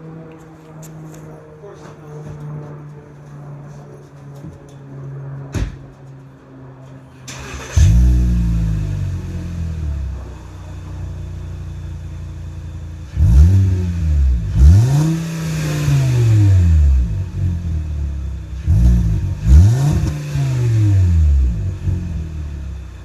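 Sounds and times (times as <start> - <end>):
car engine idling and revving: 7.2 - 23.0.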